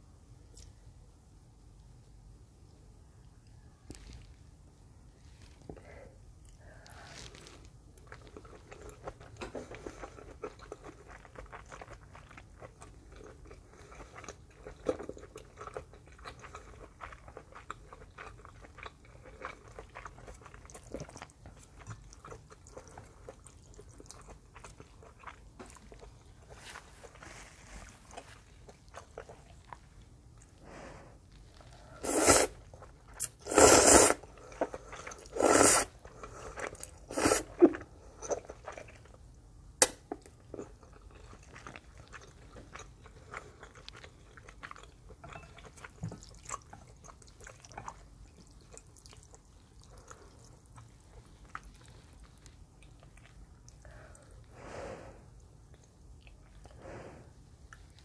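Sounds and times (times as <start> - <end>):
chewing with wet mouth clicks: 8.0 - 27.2, 28.0 - 30.6, 36.0 - 54.5, 55.4 - 56.8, 57.6 - 58.0
loud noodle slurps: 32.0 - 32.6, 33.2 - 36.0, 36.6 - 37.7.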